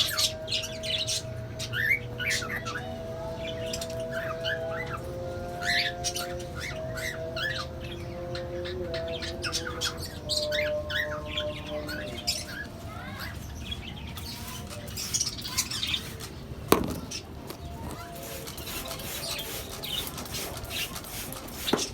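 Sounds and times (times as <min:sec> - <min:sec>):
cockatiels chirping and squawking: 0:00.0 - 0:21.9.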